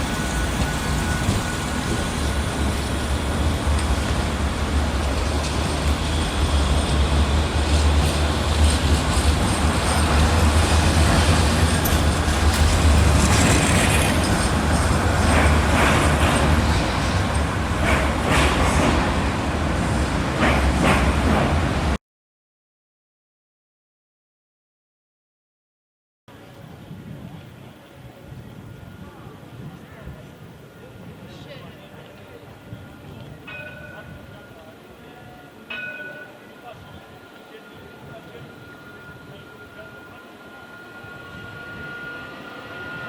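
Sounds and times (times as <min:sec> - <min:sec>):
tram clicks and rattles: 0:00.0 - 0:19.4, 0:20.2 - 0:21.8
tram rumbling on rails: 0:00.0 - 0:22.0, 0:26.3 - 0:43.0.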